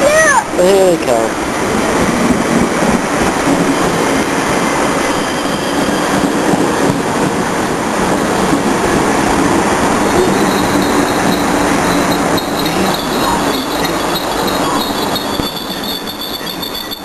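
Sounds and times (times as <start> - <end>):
train rail rumble: 0.0 - 17.0
faint steady tones: 10.0 - 17.0.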